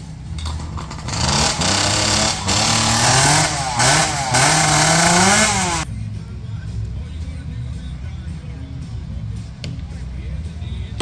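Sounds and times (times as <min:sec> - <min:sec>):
chainsaw engine revving: 0:00.4 - 0:05.9.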